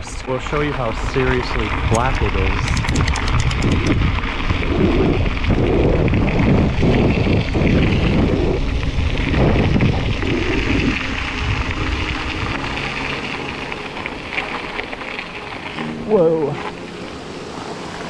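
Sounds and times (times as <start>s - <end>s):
wind buffeting microphone: 0.0s - 15.7s.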